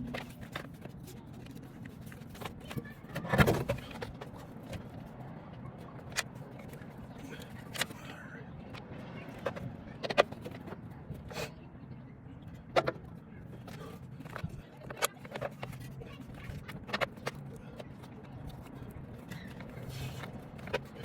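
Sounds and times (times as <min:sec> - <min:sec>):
tools clicking and scraping: 0:12.8 - 0:21.0.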